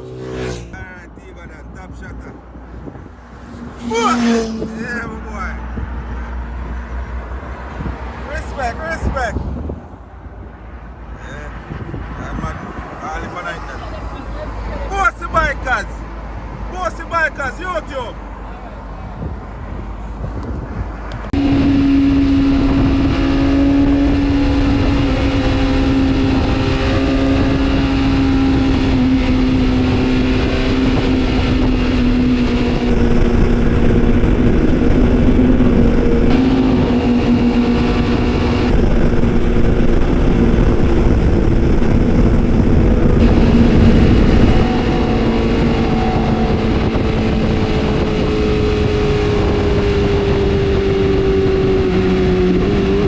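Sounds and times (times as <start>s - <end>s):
motorcycle engine at high revs: 0.0s - 0.8s, 3.1s - 8.4s, 20.5s - 53.0s
road noise: 0.0s - 53.0s
wind noise: 1.6s - 15.4s, 18.2s - 53.0s.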